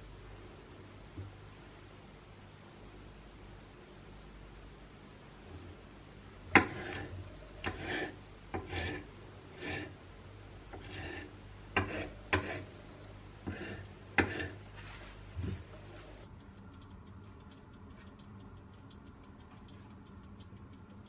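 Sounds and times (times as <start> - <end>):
utensil scraping cooking pan: 6.4 - 10.0, 10.6 - 16.2.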